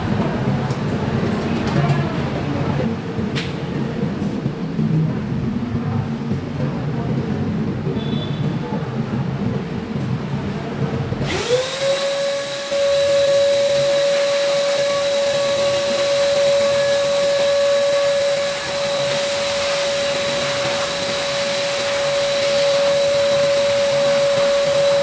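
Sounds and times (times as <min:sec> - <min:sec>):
electric fan motor whining: 0:11.1 - 0:25.0.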